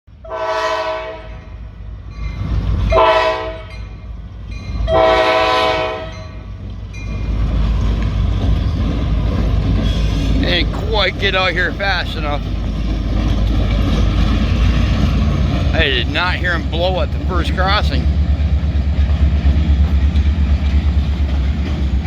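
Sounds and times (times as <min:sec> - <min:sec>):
low rumble of train: 0:00.1 - 0:22.0
locomotive air horn blasts: 0:00.2 - 0:01.4, 0:02.9 - 0:03.7, 0:04.9 - 0:06.3.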